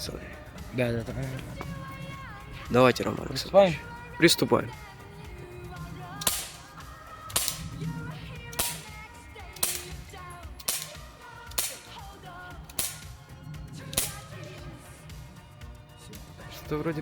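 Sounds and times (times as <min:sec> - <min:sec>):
background music: 0:00.0 - 0:17.0
small gun shots: 0:07.3 - 0:07.7, 0:08.5 - 0:09.0, 0:09.6 - 0:10.0, 0:10.6 - 0:12.1, 0:12.7 - 0:13.1, 0:14.0 - 0:14.3.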